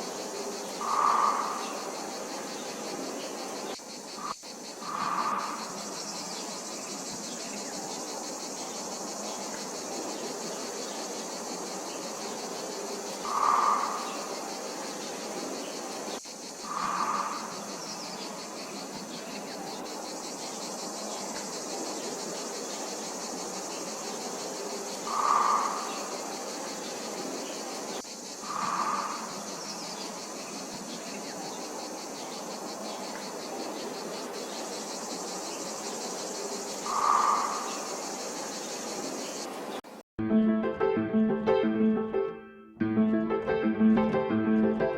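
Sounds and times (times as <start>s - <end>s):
insects chirring: 0.0s - 40.0s.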